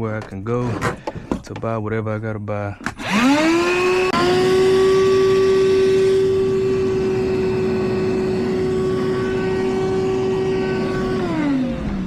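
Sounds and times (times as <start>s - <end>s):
shop vacuum high whine: 2.8s - 12.0s.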